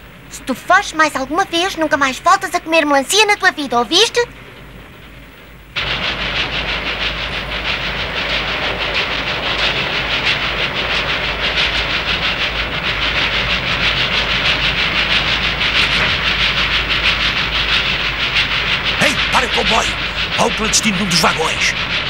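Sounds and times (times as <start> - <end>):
train rushing and clattering: 0.0 - 22.0.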